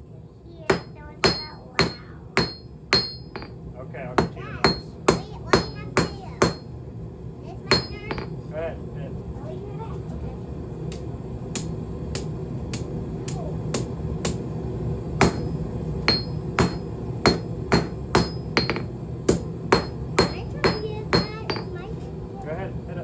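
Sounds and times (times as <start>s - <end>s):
hammer striking steel on anvil: 0.7s - 6.8s, 7.7s - 8.4s, 15.2s - 21.8s.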